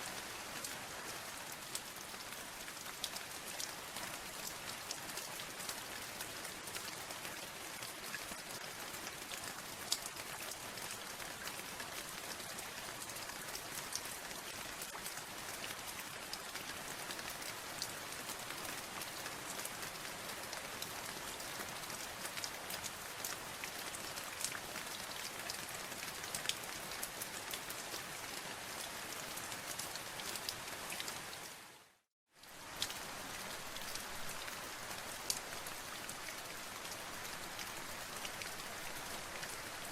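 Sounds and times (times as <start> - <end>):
rain falling: 0.0 - 39.9
raindrops ticking on a surface: 32.4 - 39.9.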